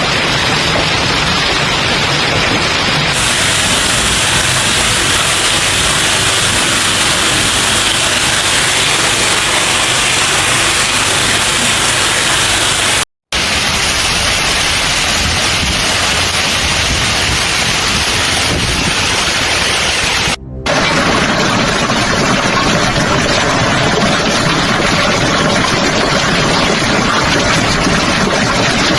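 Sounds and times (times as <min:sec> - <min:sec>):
torrential rain pouring: 0:00.0 - 0:28.9.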